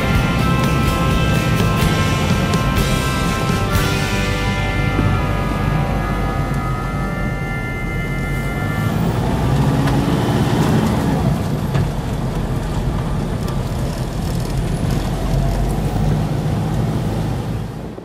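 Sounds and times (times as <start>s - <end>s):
road noise: 0.0s - 18.0s
vehicle engine running: 0.0s - 18.0s.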